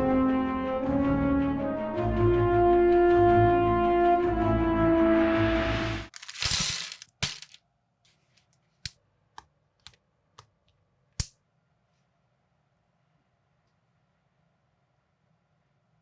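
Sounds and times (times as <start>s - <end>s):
plastic building bricks clattering: 6.1s - 7.6s.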